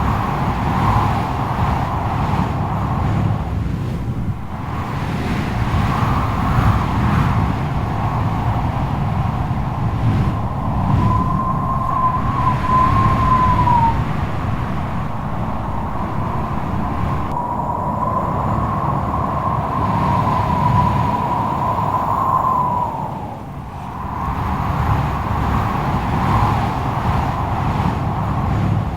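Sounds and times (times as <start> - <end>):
wind deep rumble: 0.0 - 28.9
wind whistling howl: 0.0 - 28.9.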